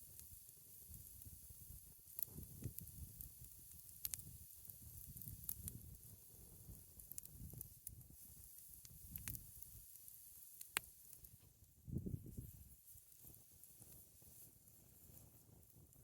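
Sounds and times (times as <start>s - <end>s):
burning wood popping and snapping: 0.0s - 16.0s
campfire burning: 0.0s - 16.0s.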